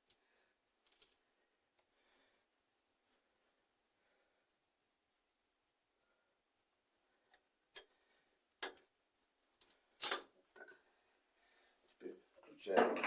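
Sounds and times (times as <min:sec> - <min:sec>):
tools and metal parts clicking: 0:09.6 - 0:10.3.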